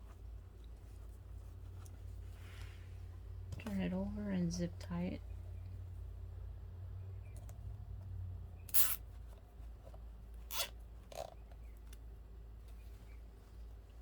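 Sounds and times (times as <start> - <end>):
zip tie zipping rasps: 8.7 - 9.0, 10.4 - 11.3.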